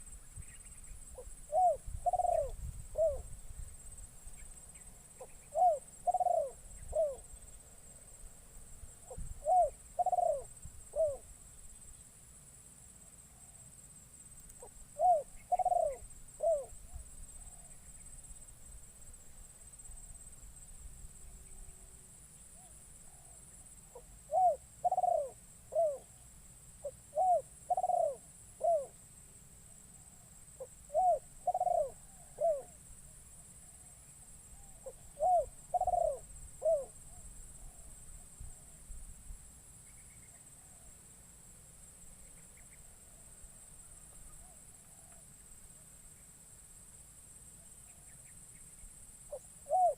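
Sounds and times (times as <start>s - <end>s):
dove cooing: 1.1s - 3.4s, 5.2s - 7.3s, 9.1s - 11.3s, 14.6s - 17.8s, 22.6s - 26.2s, 26.8s - 29.0s, 30.1s - 32.8s, 34.6s - 37.9s, 49.3s - 49.9s.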